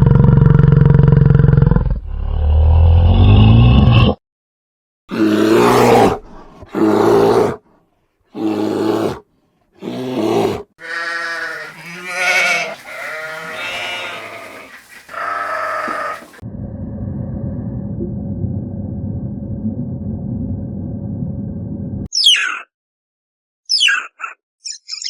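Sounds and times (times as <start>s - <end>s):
short pitched animal calls: 10.8s - 16.4s.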